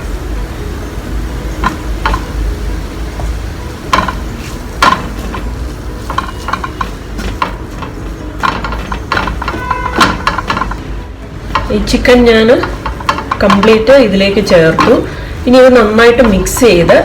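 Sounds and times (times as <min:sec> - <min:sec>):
light sizzle: 0:00.0 - 0:17.0
spoon knocking against pan: 0:01.6 - 0:02.6, 0:03.2 - 0:15.3
spoon scraping frying pan: 0:03.8 - 0:17.0.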